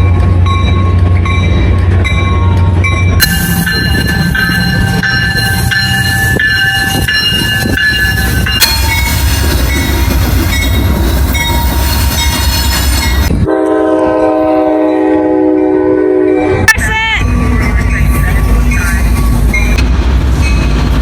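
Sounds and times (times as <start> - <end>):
train rumbling past: 0.0 - 21.0
locomotive horn: 13.3 - 16.9.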